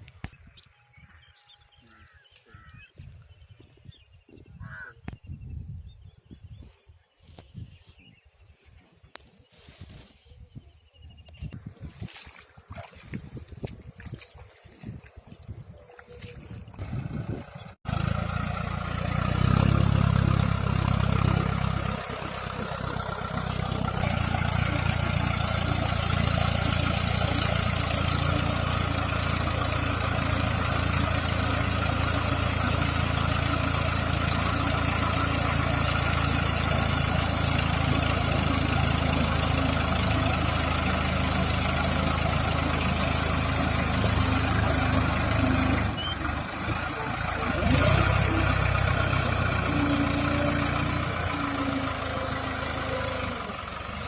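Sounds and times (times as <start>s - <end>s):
tractor diesel engine running: 15.5s - 54.0s.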